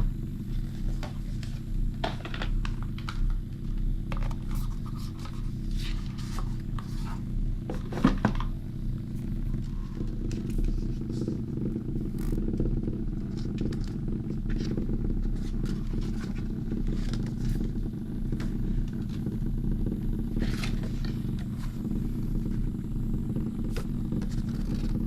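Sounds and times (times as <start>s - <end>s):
massager buzzing: 0.0s - 25.0s.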